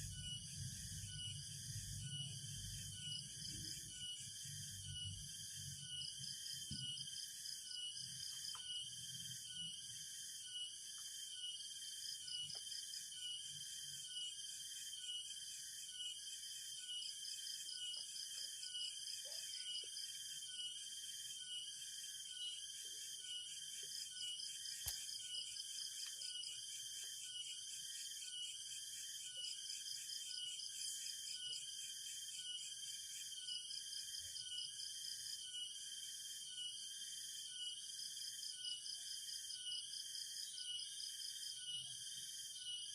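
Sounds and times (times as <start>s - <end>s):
insects trilling: 0.0s - 42.9s
steady shrill insect tone: 0.0s - 42.9s.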